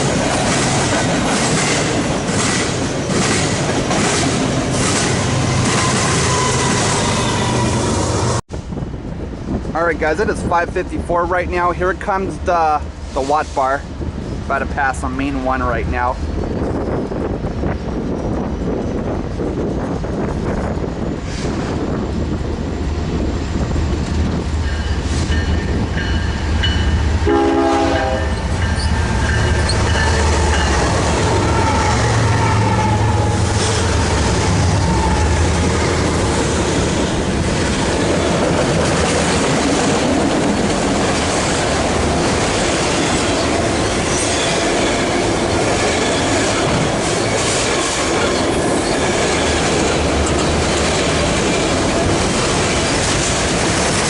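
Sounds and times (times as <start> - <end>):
train wheel clatter: 0.0 - 8.1, 33.4 - 54.0
diesel locomotives rumbling: 0.0 - 54.0
train horn: 5.8 - 8.0, 27.2 - 28.5, 31.2 - 35.4.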